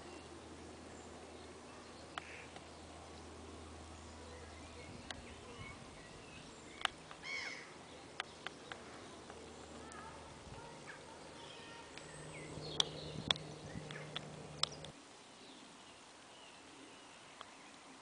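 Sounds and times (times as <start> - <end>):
small birds chirping: 0.0 - 18.0
sharp clicks and ticks: 11.9 - 15.0.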